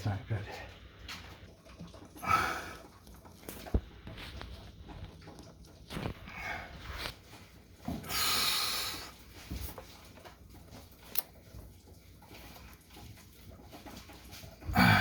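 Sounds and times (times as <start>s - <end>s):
breathy exhale: 14.8s - 15.0s.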